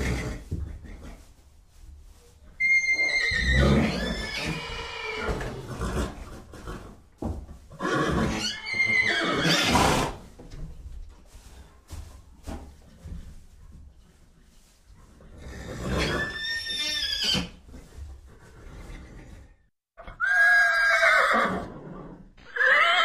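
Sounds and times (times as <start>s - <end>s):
horse whinnying: 2.6s - 6.9s, 7.7s - 10.2s, 15.5s - 17.7s, 20.0s - 23.0s.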